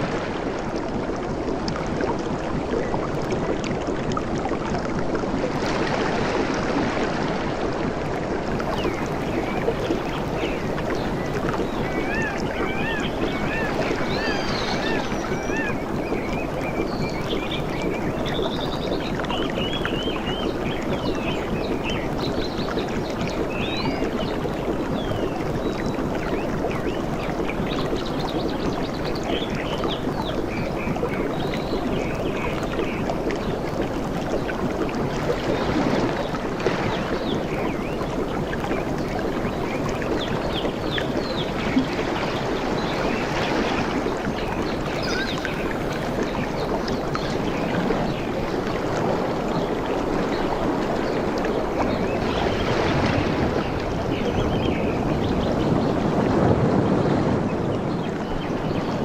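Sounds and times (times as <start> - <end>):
ocean water washing: 0.0 - 59.0
birds chirping: 8.8 - 24.1.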